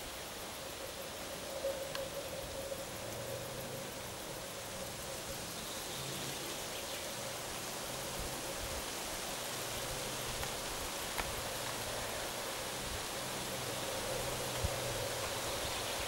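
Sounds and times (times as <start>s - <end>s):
distant electric locomotive hum: 0.0s - 16.0s
steady hiss: 0.0s - 16.0s.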